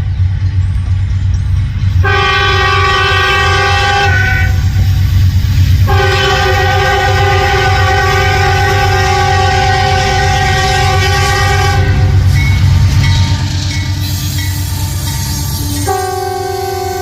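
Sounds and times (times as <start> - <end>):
train rumbling: 0.0 - 17.0
locomotive air horn blast: 2.0 - 4.8, 5.8 - 12.3, 15.7 - 17.0.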